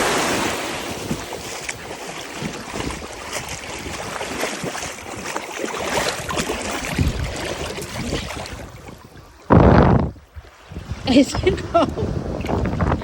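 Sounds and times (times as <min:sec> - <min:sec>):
ocean surf washing in: 0:00.0 - 0:02.4
wind buffeting microphone: 0:00.0 - 0:13.0.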